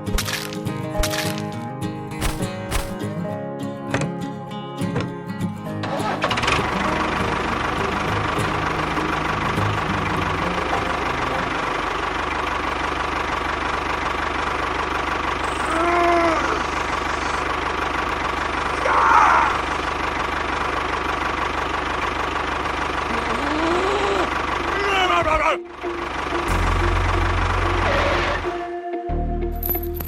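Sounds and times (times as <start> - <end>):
motor running steadily: 6.3 - 28.8.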